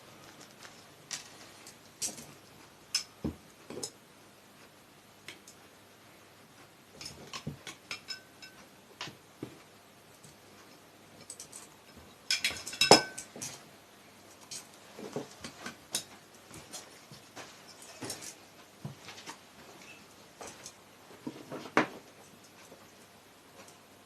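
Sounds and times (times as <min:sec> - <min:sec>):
metal tools clinking: 0:11.2 - 0:13.6, 0:17.6 - 0:18.4.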